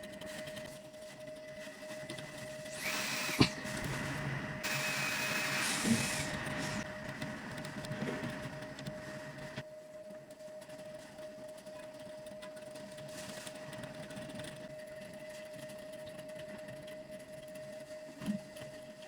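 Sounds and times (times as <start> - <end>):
machine humming: 2.2 - 9.6
hissing air bursts: 2.7 - 4.0, 4.6 - 6.8.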